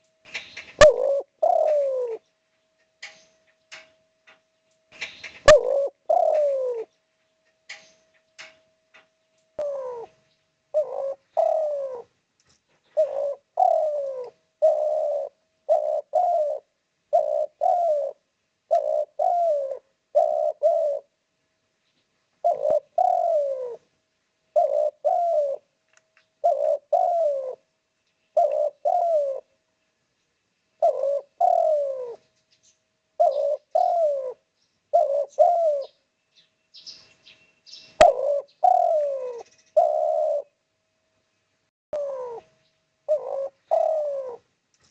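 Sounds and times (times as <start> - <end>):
dove cooing: 0.0 - 2.3, 5.0 - 6.9, 9.6 - 12.2, 12.8 - 21.2, 22.4 - 23.9, 24.5 - 25.7, 26.4 - 27.7, 28.4 - 29.6, 30.8 - 32.3, 33.2 - 36.0, 37.9 - 40.6, 42.0 - 44.5
sharp click: 3.0 - 5.4, 7.7 - 9.1.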